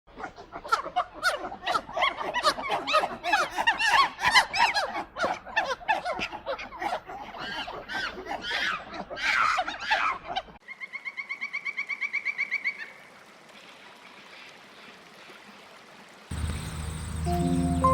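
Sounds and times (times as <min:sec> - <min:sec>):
gulls calling: 0:16.3 - 0:17.9.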